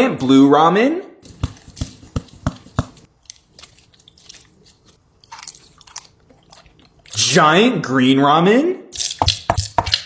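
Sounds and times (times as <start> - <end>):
person chewing noodles: 3.0 - 7.3.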